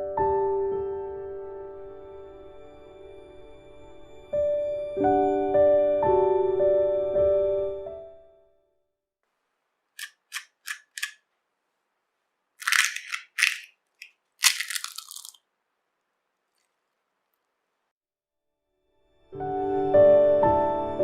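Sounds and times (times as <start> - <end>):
crisp pastry crunching: 12.5 - 17.6.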